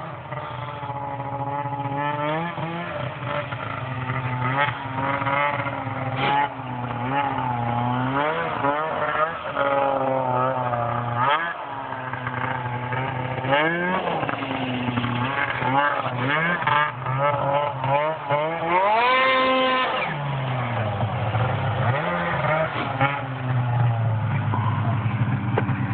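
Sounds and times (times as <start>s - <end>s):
snowmobile engine idling and revving: 0.0s - 25.9s.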